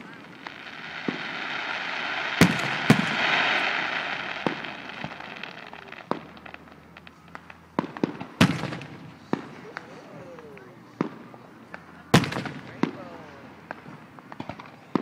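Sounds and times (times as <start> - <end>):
firework rushing hiss: 0.0 - 7.7
fireworks bangs: 0.0 - 9.4.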